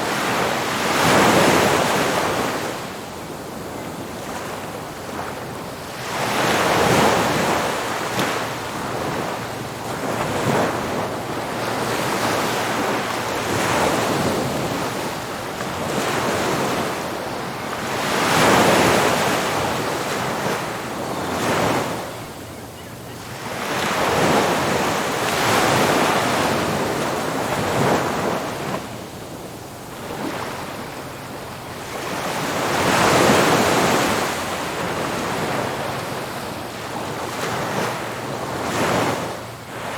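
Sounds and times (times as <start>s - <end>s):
waves breaking on a beach: 0.0s - 39.9s.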